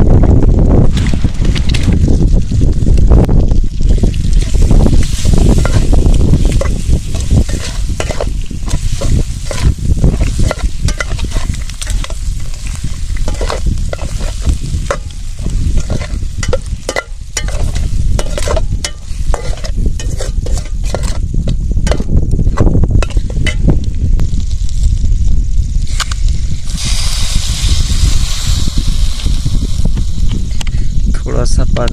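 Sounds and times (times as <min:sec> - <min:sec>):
low rumble: 0:00.0 - 0:31.2
food sizzling in a pan: 0:03.7 - 0:21.2, 0:24.2 - 0:30.6
spatula scraping pan: 0:04.4 - 0:23.6.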